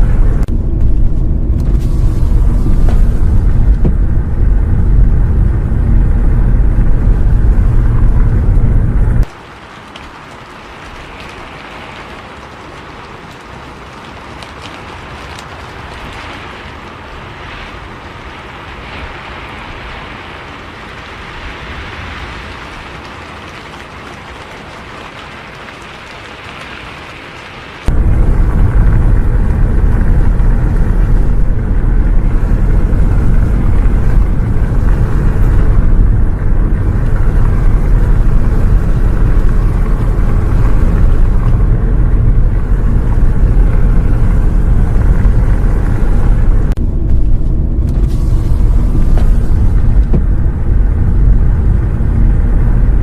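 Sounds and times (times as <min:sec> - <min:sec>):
bus engine rumble: 0:00.0 - 0:09.4, 0:27.9 - 0:53.0
rain hiss: 0:00.0 - 0:53.0.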